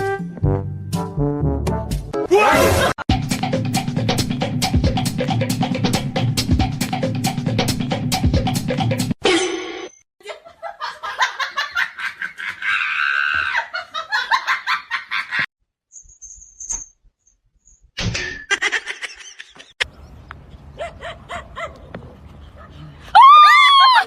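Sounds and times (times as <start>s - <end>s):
laughter in bursts: 10.2s - 15.5s, 18.5s - 19.8s.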